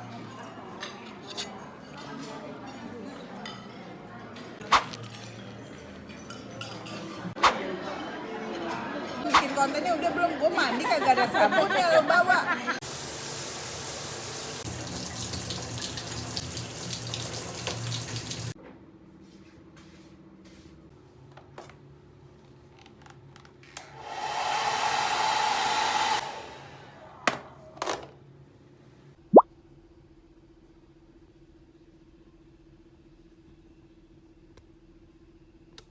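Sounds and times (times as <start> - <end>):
running water: 12.8 - 18.6
hair dryer running: 23.8 - 27.0.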